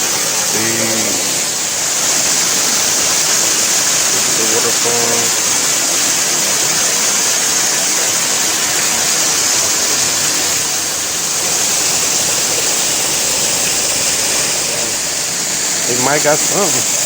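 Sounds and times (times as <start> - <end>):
waterfall splashing: 0.0 - 17.0.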